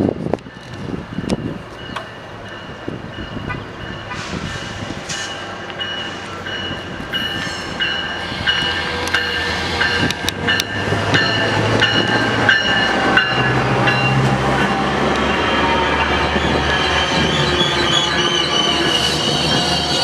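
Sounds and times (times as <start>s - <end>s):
train rolling: 0.0s - 20.0s
train wheels squealing: 15.6s - 20.0s.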